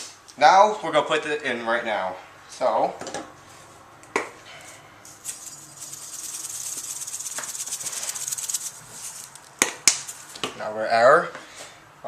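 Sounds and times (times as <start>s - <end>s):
seasoning granules shaken into bowl: 5.1s - 10.5s.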